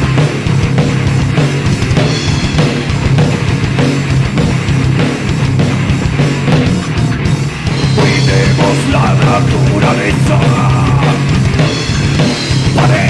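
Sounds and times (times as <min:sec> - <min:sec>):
distorted electric guitars: 0:00.0 - 0:13.0
drum kit playing: 0:00.0 - 0:13.0.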